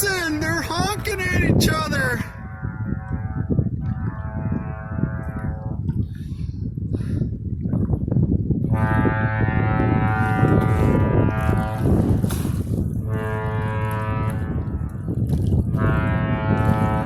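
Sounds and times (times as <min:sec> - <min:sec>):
deep ship horn blasts: 0:02.2 - 0:06.0, 0:08.6 - 0:17.0.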